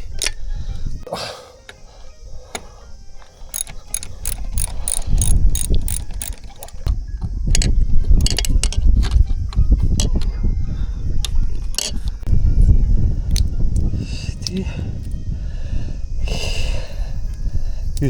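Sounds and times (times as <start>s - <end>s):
ratchet wrench clicking: 3.4s - 6.9s, 7.5s - 8.8s, 11.7s - 12.2s, 13.3s - 15.2s.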